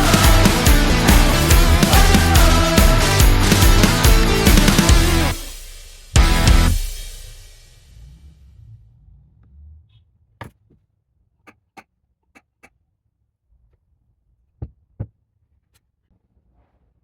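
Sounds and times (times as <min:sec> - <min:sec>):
music track: 0:00.0 - 0:07.0.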